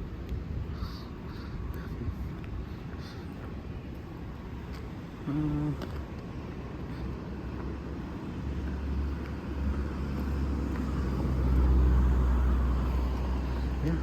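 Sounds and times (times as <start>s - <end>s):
road noise inside car: 0.0s - 14.0s.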